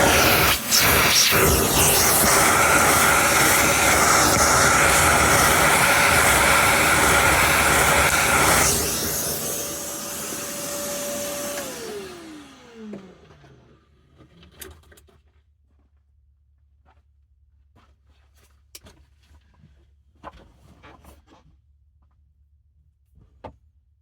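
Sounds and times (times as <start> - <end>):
vacuum cleaner running: 0.0 - 13.9
vacuum motor winding down: 0.0 - 13.9.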